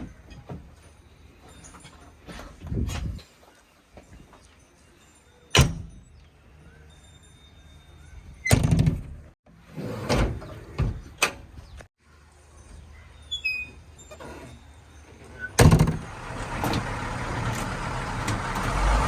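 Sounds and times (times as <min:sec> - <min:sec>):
diesel engine hum: 0:15.8 - 0:19.0.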